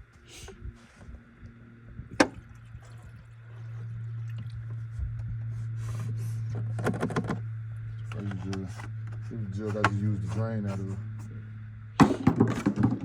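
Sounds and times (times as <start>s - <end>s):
steady low hum: 0.0s - 13.0s
liquid pouring and glugging: 2.1s - 4.9s.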